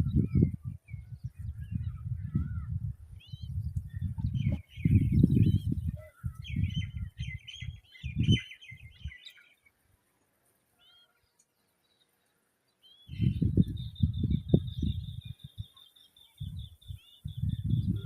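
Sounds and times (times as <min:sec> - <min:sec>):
birds chattering: 0:03.9 - 0:09.7.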